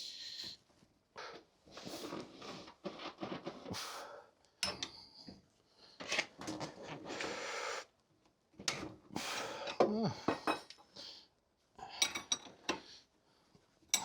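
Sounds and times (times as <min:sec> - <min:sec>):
rustling and scraping of metal parts: 0:01.8 - 0:03.7.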